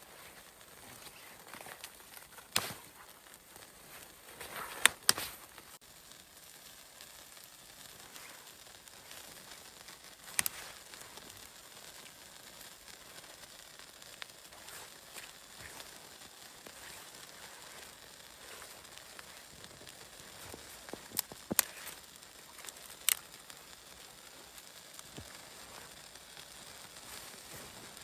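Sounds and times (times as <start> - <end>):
fire popping: 0.0 - 28.0
wood fire crackling: 0.0 - 28.0.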